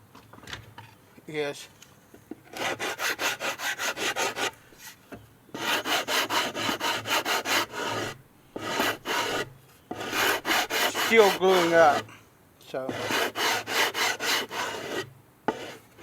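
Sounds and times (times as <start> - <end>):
hand rubbing wood: 5.6 - 12.1, 12.8 - 16.0.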